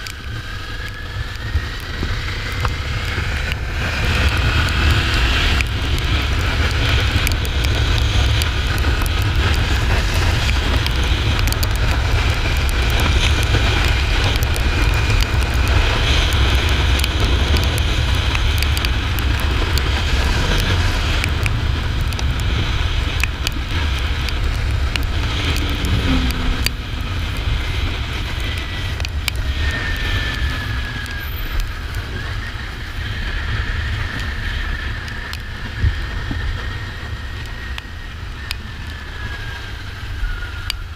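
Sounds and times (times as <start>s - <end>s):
motorcycle engine running: 0.0s - 32.5s
wind noise: 0.0s - 40.9s.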